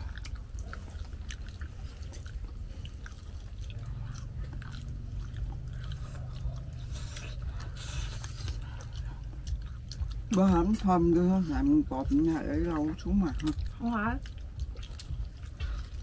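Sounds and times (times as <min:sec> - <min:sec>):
crackles of crisp crust: 0:00.0 - 0:16.0
low hum: 0:00.0 - 0:16.0
people chewing fried food: 0:00.0 - 0:16.0.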